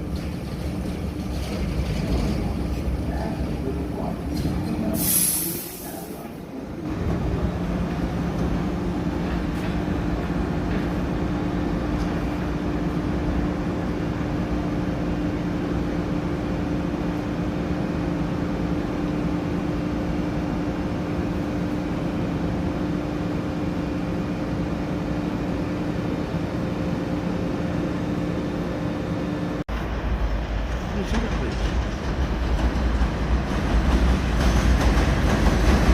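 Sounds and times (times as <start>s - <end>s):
subway train humming: 0.0s - 35.9s
air hiss: 4.9s - 6.3s.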